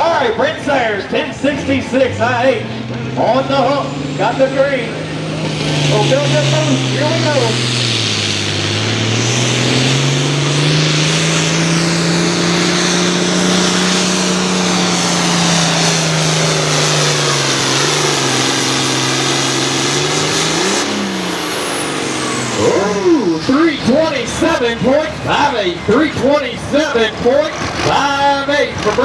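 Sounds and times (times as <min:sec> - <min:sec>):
tractor diesel engine at full throttle: 0:00.0 - 0:29.0.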